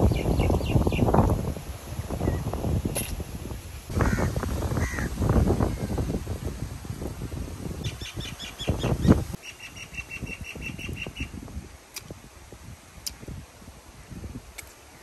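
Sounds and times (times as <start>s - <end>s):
bird calling: 7.8s - 11.4s.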